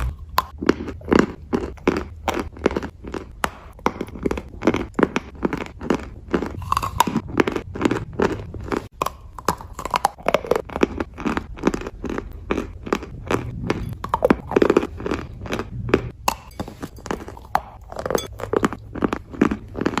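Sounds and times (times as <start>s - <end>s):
chewing crunchy chalk: 0.0s - 20.0s.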